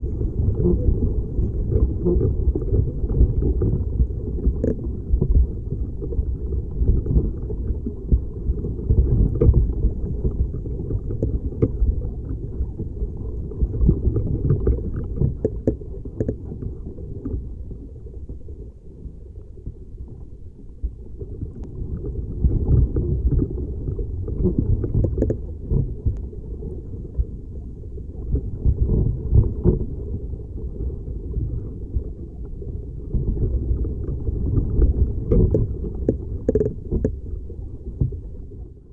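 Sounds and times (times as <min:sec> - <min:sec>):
small clicks and cracks: 0:35.3 - 0:37.2.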